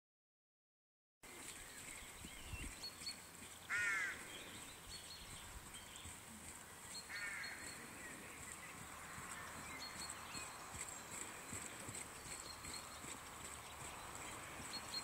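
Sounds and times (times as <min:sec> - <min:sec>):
small birds chirping and whistling: 0:01.4 - 0:06.2, 0:06.8 - 0:15.0
bird cawing harshly: 0:03.7 - 0:04.2.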